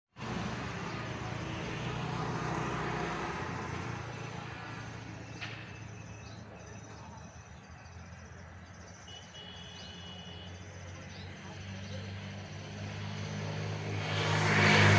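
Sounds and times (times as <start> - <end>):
vehicle engine and tyres: 0.1 - 8.9.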